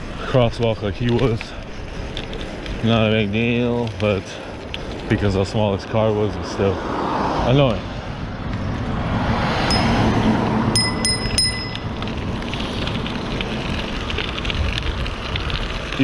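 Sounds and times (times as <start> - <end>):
wind rushing: 6.3 - 15.6
short high pings: 9.7 - 10.1, 10.8 - 11.9.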